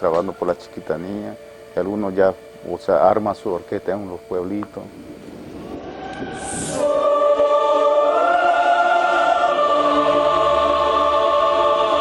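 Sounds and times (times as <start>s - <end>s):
choir singing held notes: 5.6s - 12.0s.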